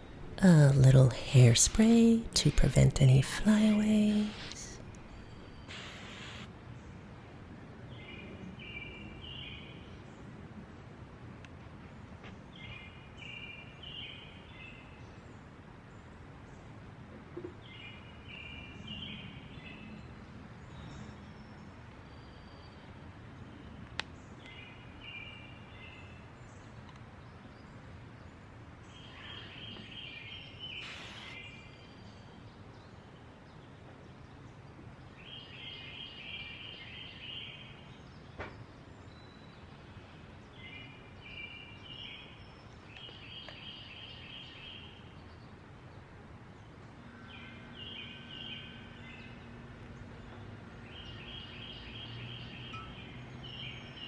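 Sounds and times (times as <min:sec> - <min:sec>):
outdoor background hiss: 0:00.0 - 0:54.0.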